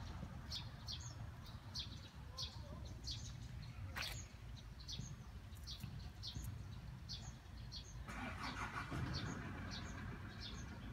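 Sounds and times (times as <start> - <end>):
small bird chirping: 0.0 - 8.1.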